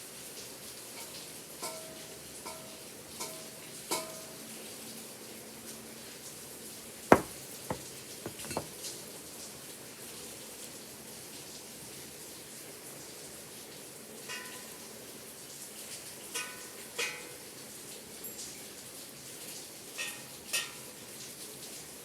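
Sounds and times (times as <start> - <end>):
sharp knock: 7.1 - 8.7.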